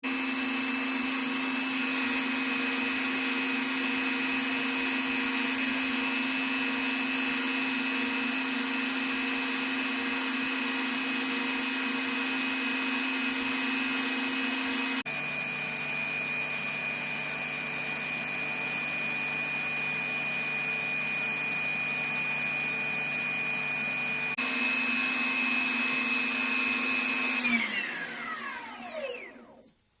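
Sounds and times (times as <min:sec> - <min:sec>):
motor spooling down: 0:00.0 - 0:29.7
rc helicopter motor whine: 0:24.4 - 0:29.7.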